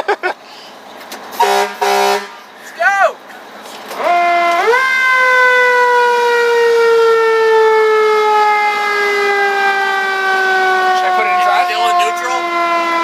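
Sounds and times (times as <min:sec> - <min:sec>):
fire engine siren wailing: 0:03.9 - 0:13.0.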